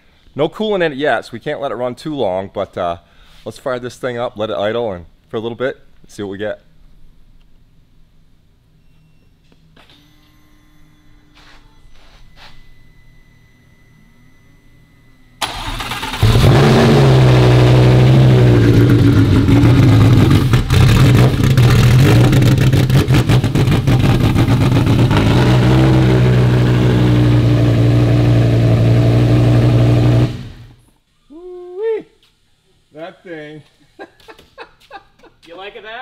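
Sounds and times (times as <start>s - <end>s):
engine starter cranking: 15.4s - 17.1s
car engine idling: 15.4s - 30.8s.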